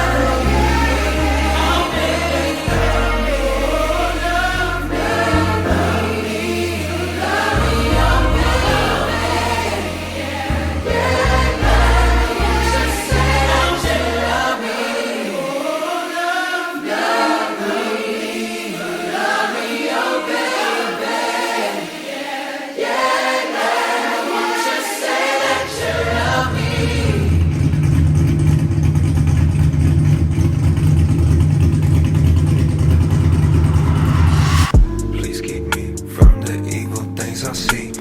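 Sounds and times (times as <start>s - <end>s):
choir singing: 0.0s - 27.9s, 32.8s - 35.6s
car engine droning: 25.8s - 35.8s.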